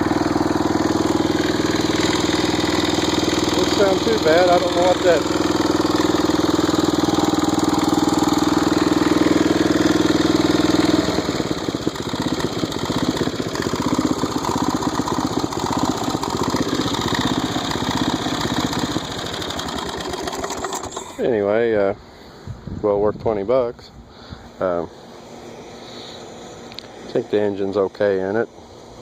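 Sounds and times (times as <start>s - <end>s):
mower engine running: 0.0s - 21.6s.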